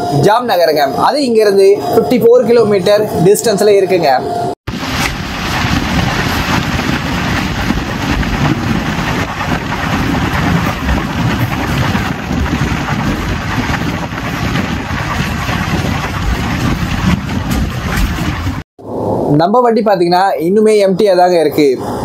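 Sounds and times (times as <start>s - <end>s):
train wheels rumbling on rail: 4.7s - 18.7s
wind buffeting microphone: 4.7s - 19.3s.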